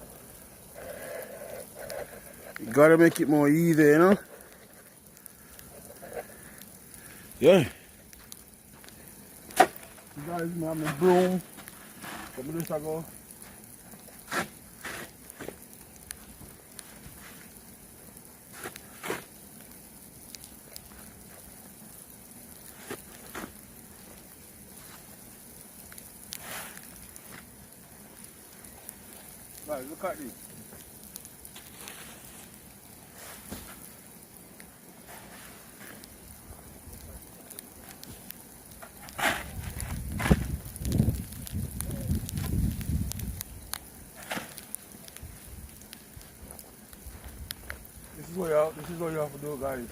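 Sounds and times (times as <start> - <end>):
snow crackling and scraping: 0.0 - 4.9, 9.6 - 15.7, 26.4 - 27.4, 31.5 - 33.9, 35.0 - 36.1, 38.8 - 43.4
faint steady hiss: 0.0 - 49.9
crunching strokes in snow: 9.6 - 15.7, 31.5 - 34.0, 35.0 - 36.1
brush swishing snow: 14.2 - 15.6, 18.5 - 19.3, 26.4 - 26.8, 31.6 - 32.5, 33.1 - 33.8, 35.0 - 36.0.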